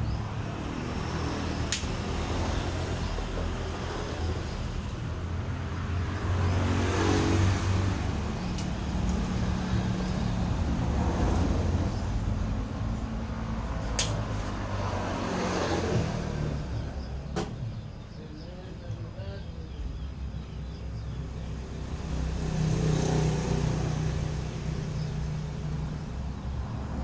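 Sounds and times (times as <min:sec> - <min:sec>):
sharp clicks: 0:01.7 - 0:02.1, 0:08.5 - 0:09.4, 0:13.8 - 0:14.5.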